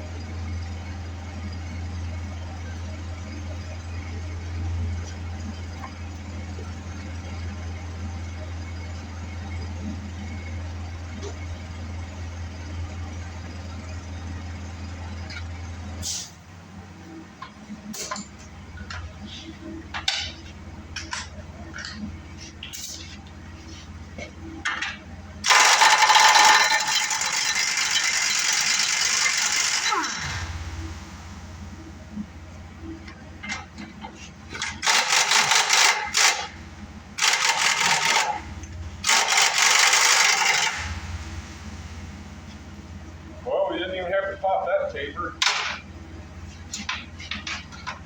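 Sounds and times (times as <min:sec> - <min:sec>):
loud steady noise: 0:25.4 - 0:32.8
steady low hum: 0:29.8 - 0:34.8, 0:40.8 - 0:48.0.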